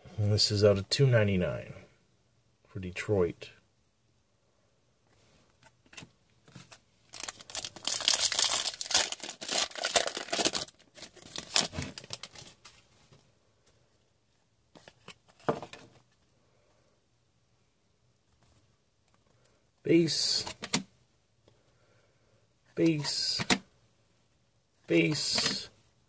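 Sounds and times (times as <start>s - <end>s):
foil wrapper tearing and crinkling: 7.1s - 12.6s.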